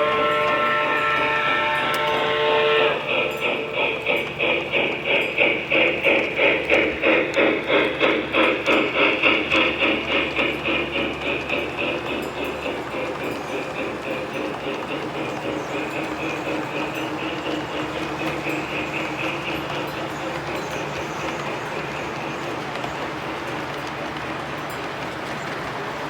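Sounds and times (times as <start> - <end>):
model locomotive chime whistle: 0.0 - 3.7
steam chuffing: 0.0 - 26.0.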